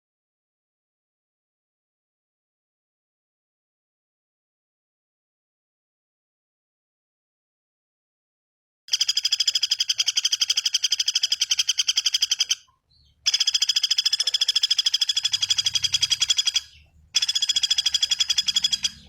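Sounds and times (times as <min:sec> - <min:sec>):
bird rattling trill: 0:08.9 - 0:19.0.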